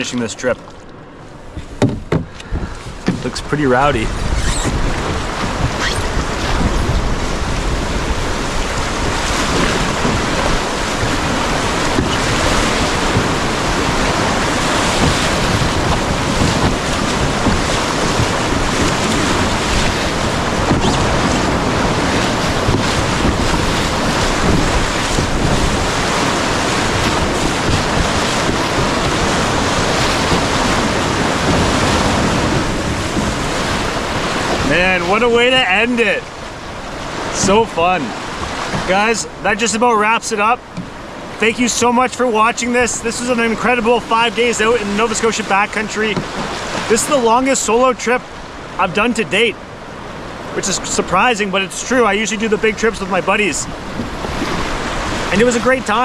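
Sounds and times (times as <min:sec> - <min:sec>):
wind buffeting microphone: 0:01.3 - 0:39.6, 0:53.0 - 0:56.0
whitewater rapid rushing: 0:01.4 - 0:56.0.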